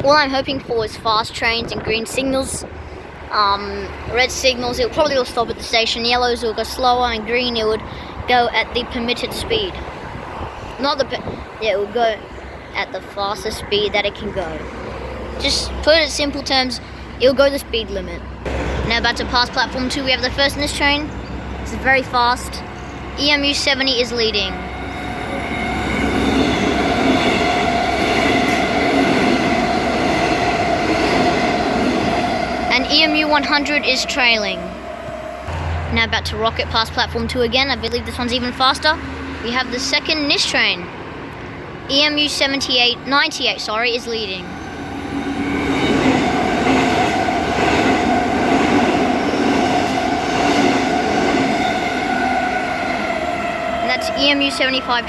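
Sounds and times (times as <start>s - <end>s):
train wheels rumbling on rail: 0.0s - 55.0s
train whine: 1.6s - 55.0s
humming tones: 24.5s - 35.9s, 44.7s - 55.0s.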